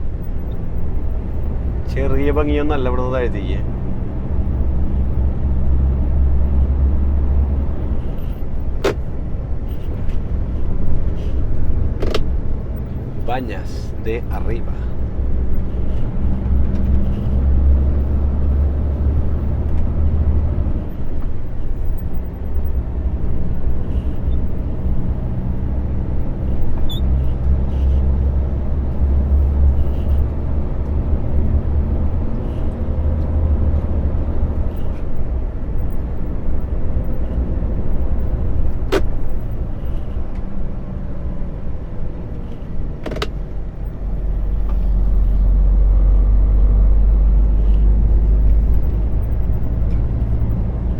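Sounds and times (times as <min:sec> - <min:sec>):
lorry engine and road rumble: 0:00.0 - 0:50.9.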